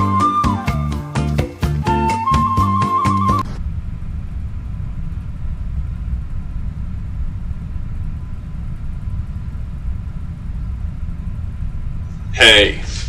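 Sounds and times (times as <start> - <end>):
low background rumble: 3.4 - 13.0.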